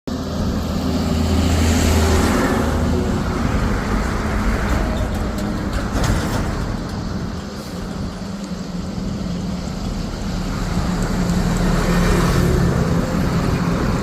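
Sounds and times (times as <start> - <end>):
steady traffic rush: 0.0 - 14.0
vehicle engine low hum: 0.1 - 14.0.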